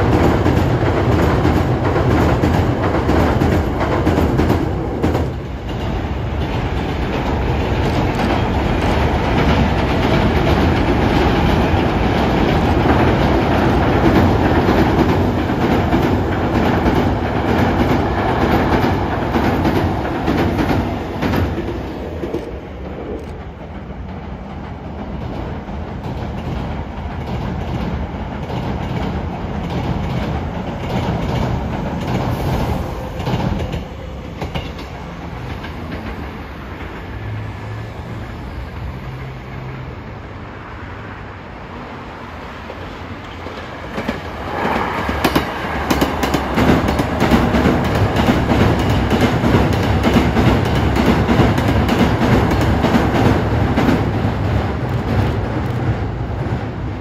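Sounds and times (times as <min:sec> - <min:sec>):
train rumbling over bridge: 0:00.0 - 0:57.0
wheels clacking over rail joints: 0:42.7 - 0:57.0.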